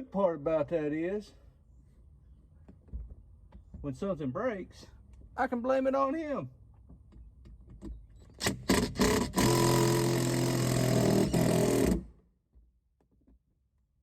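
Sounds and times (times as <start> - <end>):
cordless drill motor: 8.4 - 12.1.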